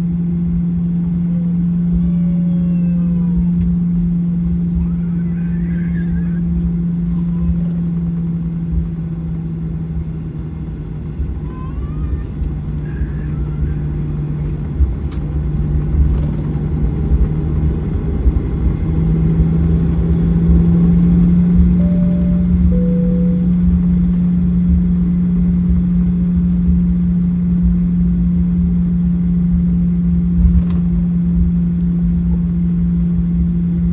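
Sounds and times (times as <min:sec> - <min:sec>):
jet engines running: 0:00.0 - 0:33.9.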